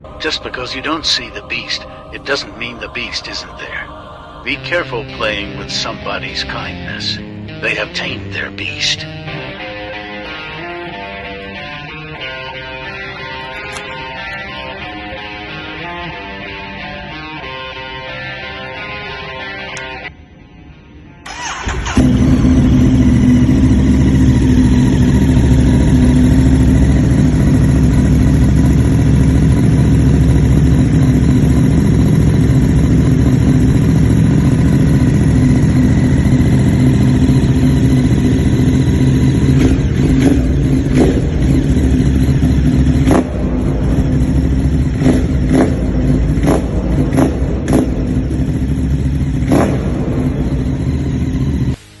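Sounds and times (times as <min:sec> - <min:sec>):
motorcycle engine idling: 0:21.3 - 0:51.8
sharp exhaust cracks: 0:21.3 - 0:51.8.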